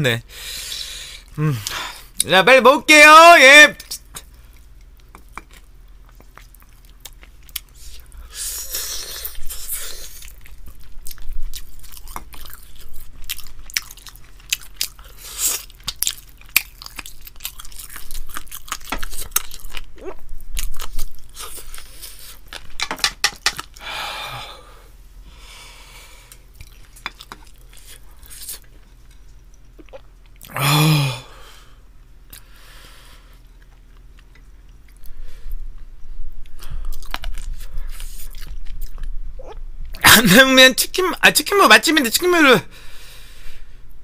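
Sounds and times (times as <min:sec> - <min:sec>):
person chewing crunchy food: 0:04.2 - 0:23.8, 0:26.1 - 0:30.6, 0:36.4 - 0:40.0.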